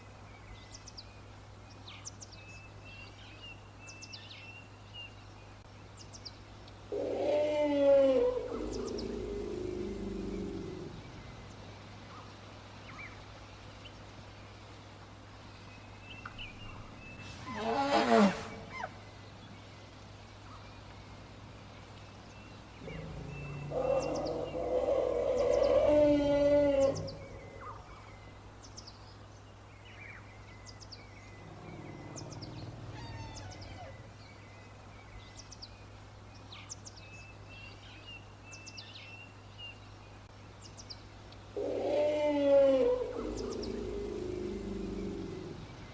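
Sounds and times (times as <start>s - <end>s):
birds chirping: 2.6s - 14.6s, 15.4s - 45.9s
elephant trumpeting: 17.2s - 19.0s, 22.8s - 27.5s, 31.5s - 34.1s.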